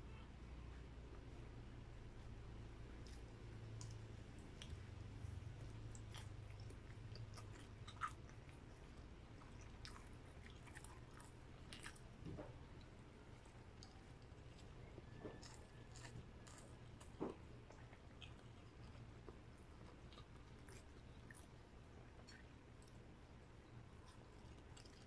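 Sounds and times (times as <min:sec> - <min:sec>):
steady low hum: 0:00.0 - 0:25.0
chewing and biting meat: 0:03.0 - 0:23.0, 0:23.9 - 0:25.0.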